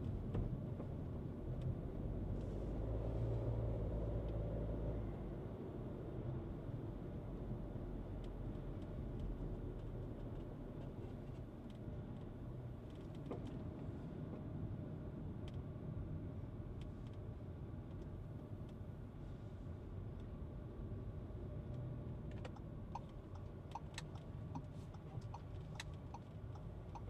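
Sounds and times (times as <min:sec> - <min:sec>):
car engine and road rumble: 0:00.0 - 0:27.0
faint irregular clicks: 0:21.7 - 0:27.0.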